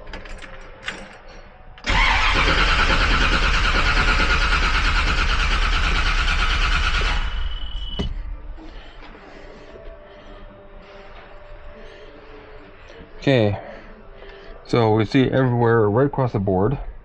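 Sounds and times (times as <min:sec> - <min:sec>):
car engine starter cranking: 0:01.8 - 0:07.6.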